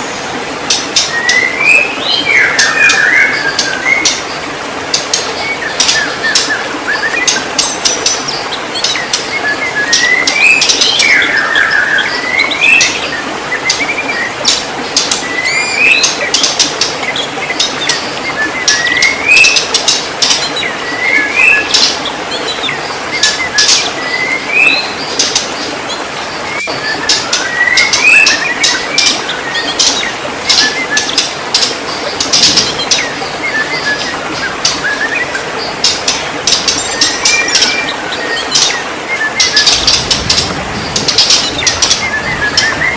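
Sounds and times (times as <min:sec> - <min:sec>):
bird singing whistled phrases: 0:26.5 - 0:28.8.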